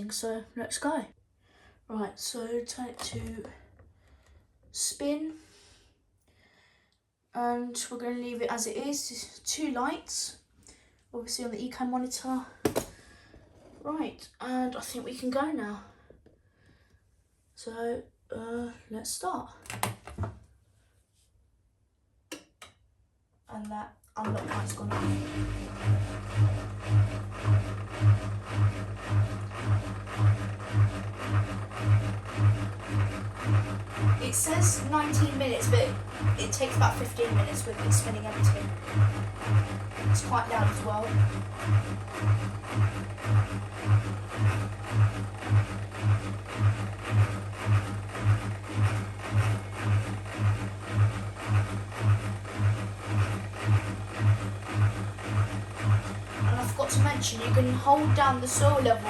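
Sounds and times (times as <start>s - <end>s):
washing machine drum pulsing hum: 24.2s - 59.0s.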